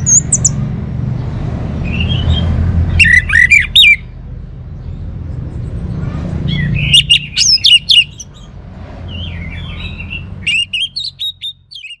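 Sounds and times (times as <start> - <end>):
bird singing whistled notes: 1.8 - 4.1, 6.5 - 8.3, 9.1 - 12.0.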